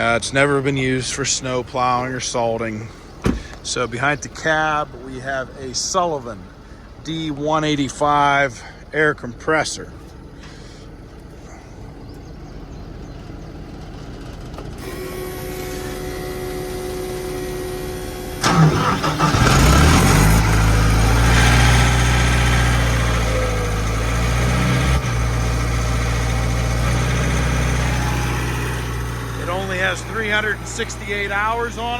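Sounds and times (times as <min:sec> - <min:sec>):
diesel engine starting and idling: 0:00.0 - 0:31.9
steady whine: 0:14.0 - 0:21.2, 0:25.0 - 0:31.9.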